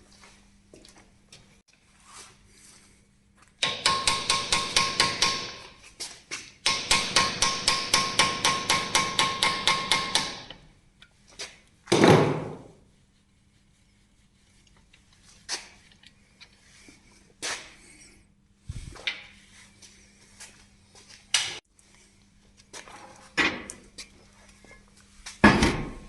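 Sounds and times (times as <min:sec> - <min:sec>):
hammer ringing on steel: 0:03.6 - 0:05.6, 0:06.6 - 0:10.5.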